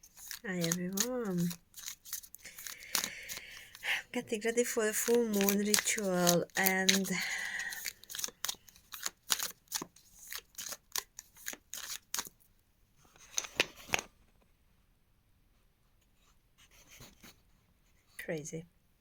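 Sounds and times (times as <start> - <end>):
cards being shuffled: 0.0 - 12.4, 13.2 - 14.1.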